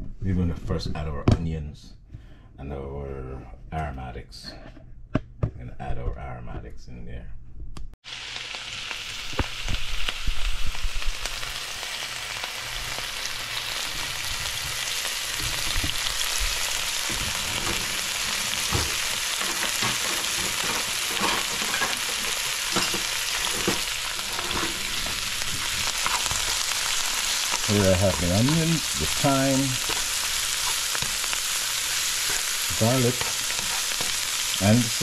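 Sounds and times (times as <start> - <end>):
vegetables sizzling in hot oil: 8.0 - 35.0.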